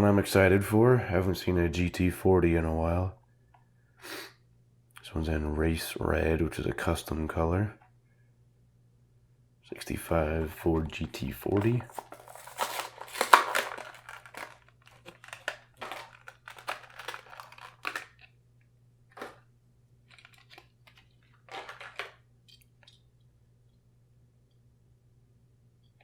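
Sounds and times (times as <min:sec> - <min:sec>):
plastic and cardboard crinkling: 0:10.4 - 0:18.3, 0:19.1 - 0:19.4, 0:20.1 - 0:22.2.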